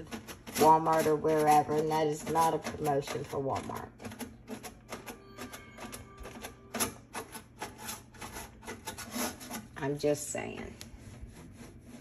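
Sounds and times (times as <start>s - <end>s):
scrubbing inside microwave: 6.7s - 12.0s.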